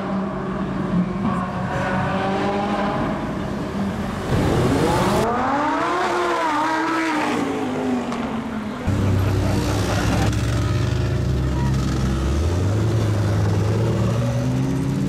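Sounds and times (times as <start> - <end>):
car engine revving: 1.4 - 8.0.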